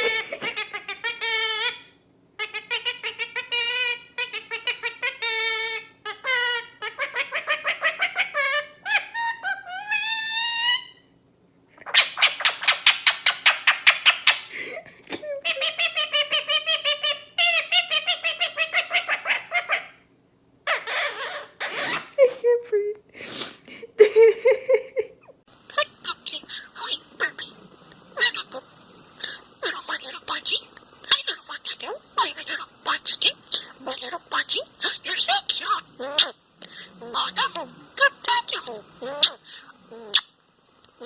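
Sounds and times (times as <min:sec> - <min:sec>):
bird warbling calls: 0:28.2 - 0:40.4.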